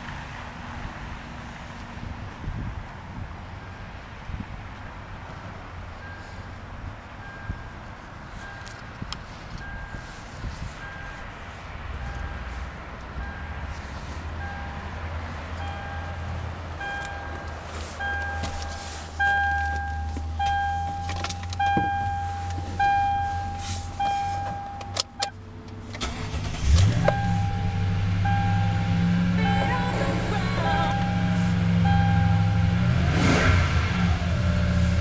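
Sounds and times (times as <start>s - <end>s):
truck engine cranking and idling: 5.9s - 35.0s
dashboard warning chime dinging: 8.4s - 8.9s, 9.6s - 10.1s, 12.0s - 12.6s, 13.2s - 13.7s, 14.4s - 15.0s, 15.6s - 25.3s, 26.0s - 32.9s.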